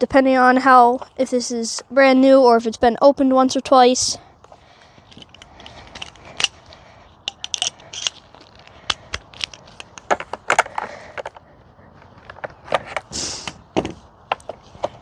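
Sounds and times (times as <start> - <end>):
plastic clips snapping: 5.1 - 6.6, 7.3 - 10.2.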